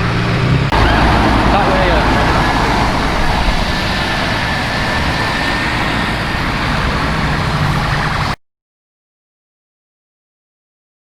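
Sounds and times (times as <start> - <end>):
busy road traffic: 0.0 - 8.4.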